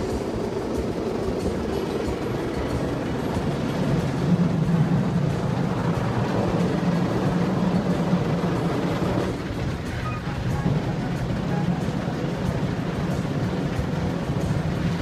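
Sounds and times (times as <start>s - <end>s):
car wash machinery running: 0.0s - 15.0s.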